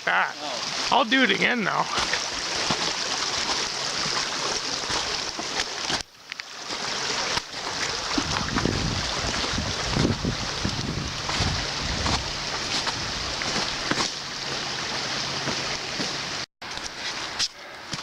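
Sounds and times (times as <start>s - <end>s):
creek rushing: 0.0s - 18.0s
wind buffeting microphone: 7.8s - 13.9s.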